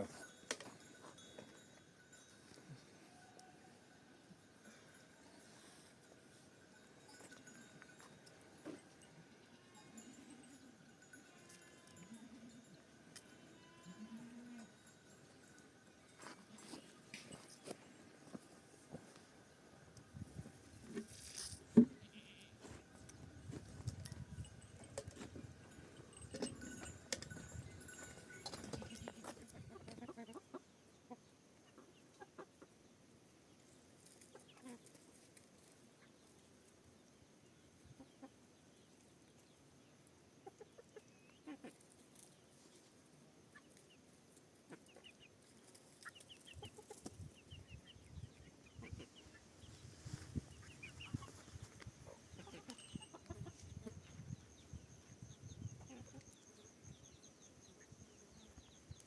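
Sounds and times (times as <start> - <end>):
chickens clucking: 28.5 - 32.8, 38.0 - 38.5, 40.4 - 42.7, 44.7 - 54.2, 55.8 - 56.4.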